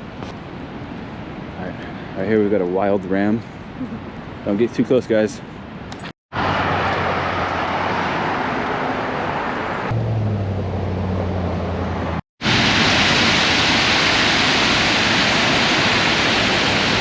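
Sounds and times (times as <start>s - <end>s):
waterfall rushing: 12.4s - 17.0s.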